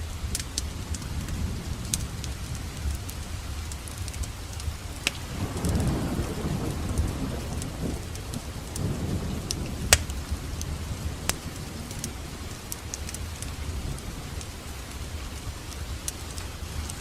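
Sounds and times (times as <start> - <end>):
low rumble of burning: 0.0 - 17.0
wood fire crackling: 0.0 - 17.0
sharp pops of burning wood: 3.7 - 5.9, 7.5 - 10.7.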